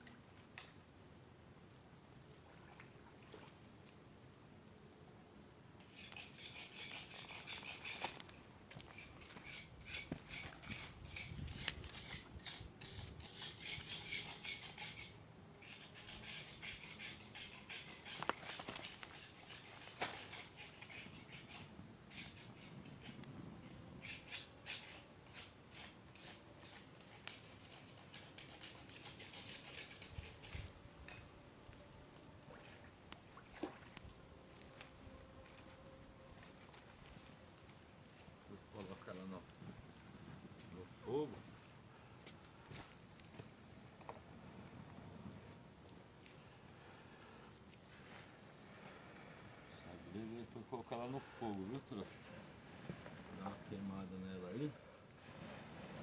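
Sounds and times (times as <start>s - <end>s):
crackly rustling of tinder and wood: 5.7s - 56.0s.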